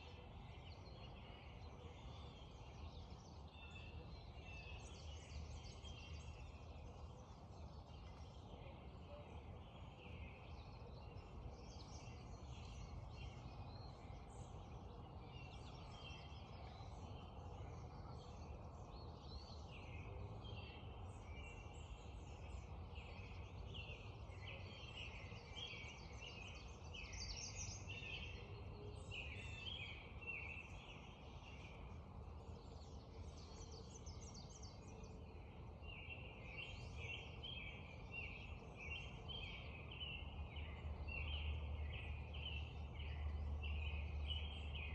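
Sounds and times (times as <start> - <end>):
songbirds singing and chirping: 0.0 - 44.9.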